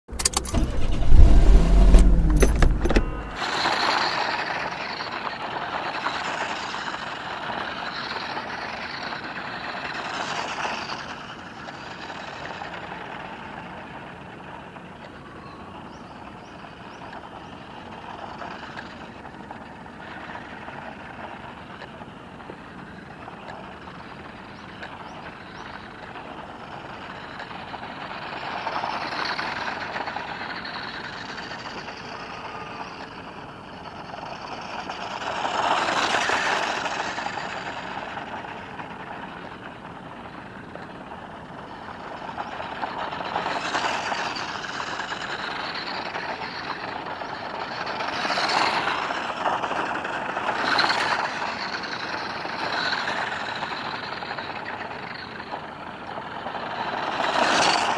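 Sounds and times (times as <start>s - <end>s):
electric motor and gears whirring: 0.0s - 3.9s.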